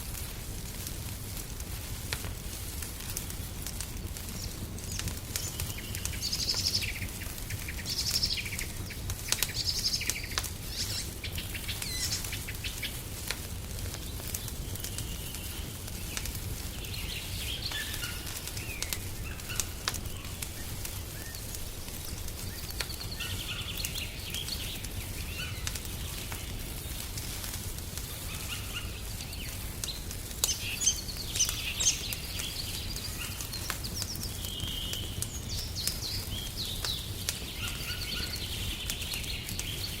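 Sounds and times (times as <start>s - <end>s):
wood fire crackling: 0.0s - 40.0s
small birds chirping: 3.3s - 40.0s.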